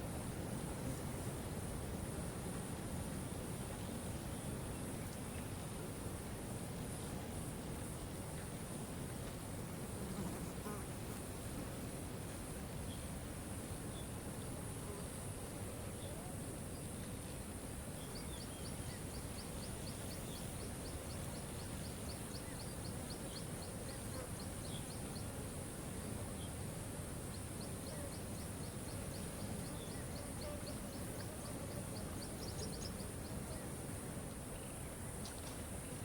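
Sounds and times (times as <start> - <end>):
steady high hiss: 0.0 - 36.0.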